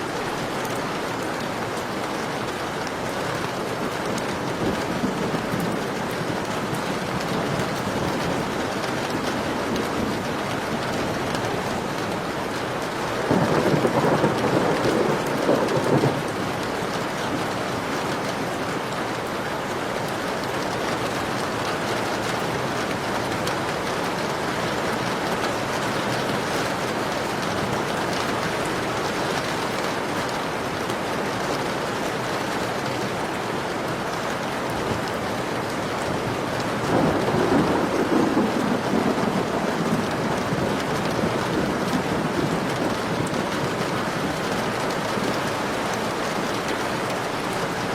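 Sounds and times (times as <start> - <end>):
heavy rain falling: 0.0 - 47.9
thunder rolling: 13.3 - 16.4, 36.8 - 45.3.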